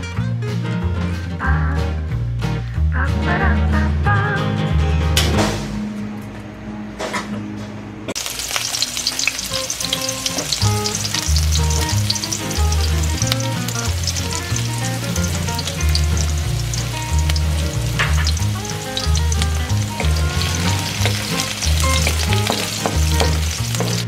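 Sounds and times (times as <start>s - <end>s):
background music with bass line: 0.0s - 5.9s, 9.8s - 24.0s
onion sizzling in hot oil: 8.2s - 24.0s.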